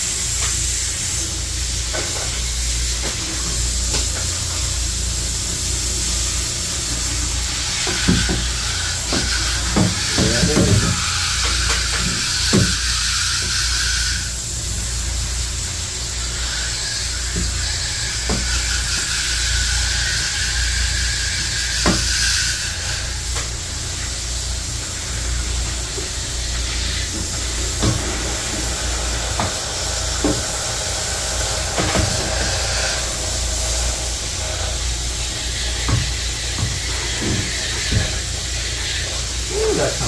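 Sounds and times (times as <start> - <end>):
water spraying from hose nozzle: 0.0 - 40.0.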